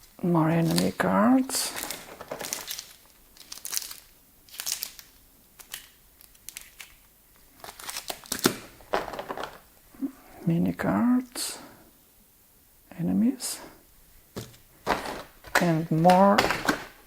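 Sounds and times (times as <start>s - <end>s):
plastic wrapping crinkling: 0.5s - 9.7s, 14.4s - 17.0s.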